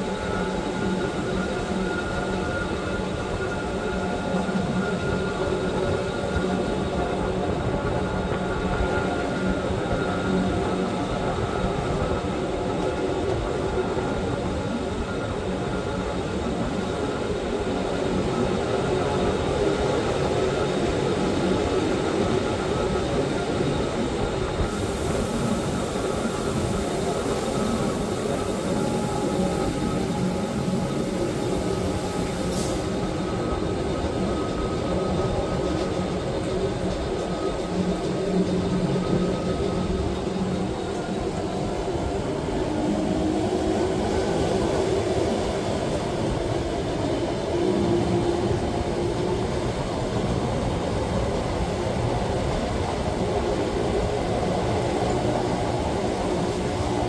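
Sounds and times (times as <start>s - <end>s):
train rumbling with whine: 0.0s - 57.0s.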